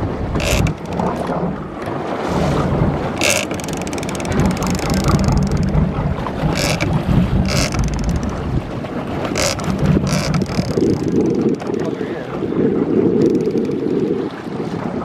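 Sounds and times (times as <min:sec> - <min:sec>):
boat motor running: 0:00.0 - 0:14.5
wind buffeting microphone: 0:00.0 - 0:15.0.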